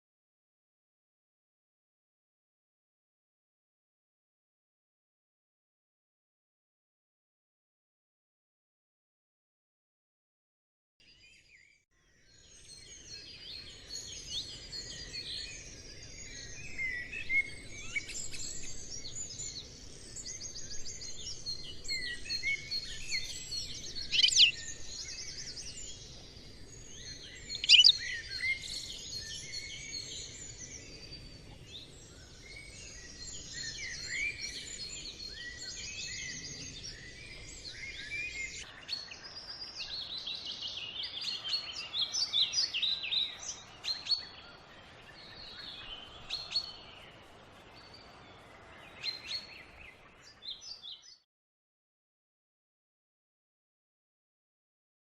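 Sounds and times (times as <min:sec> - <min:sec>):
small birds chirping: 0:11.0 - 0:51.2
loud sharp bird calls: 0:22.3 - 0:25.6, 0:27.4 - 0:30.1.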